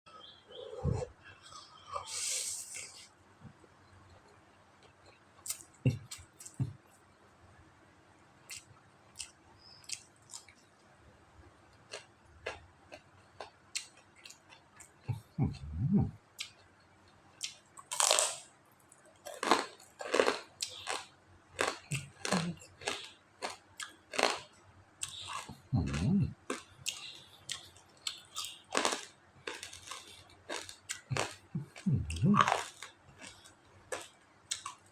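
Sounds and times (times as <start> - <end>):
person chewing noodles: 11.8 - 16.6, 17.4 - 34.9
low throaty sound: 15.1 - 16.2, 21.9 - 22.7, 25.2 - 26.4, 31.1 - 32.6.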